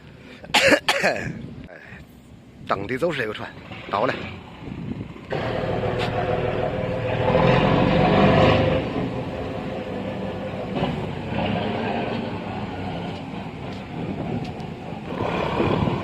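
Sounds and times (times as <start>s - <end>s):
boat diesel engine running: 4.4s - 16.0s.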